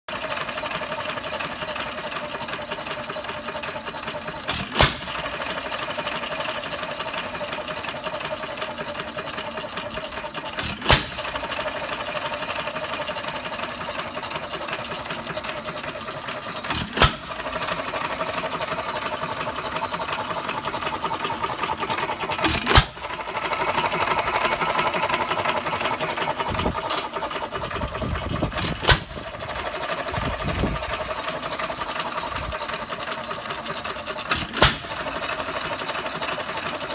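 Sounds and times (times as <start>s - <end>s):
engine mechanical clatter: 0.1s - 36.9s
engine firing bang: 4.5s - 5.4s, 10.6s - 11.6s, 16.7s - 17.5s, 22.4s - 23.2s, 28.5s - 29.4s, 34.3s - 35.2s.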